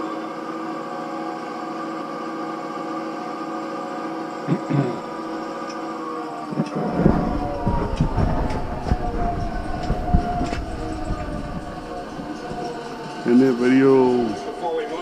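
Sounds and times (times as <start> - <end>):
locomotive diesel engine running: 3.2 - 15.0
heavy rumble and clatter: 6.5 - 15.0.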